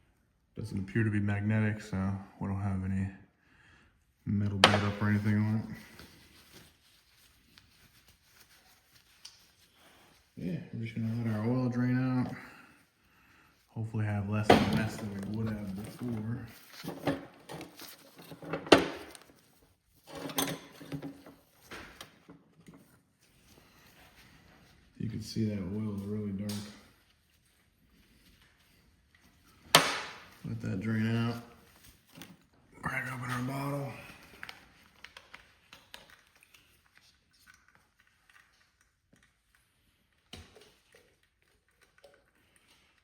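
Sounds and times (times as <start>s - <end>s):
handling rustles: 14.1s - 32.5s.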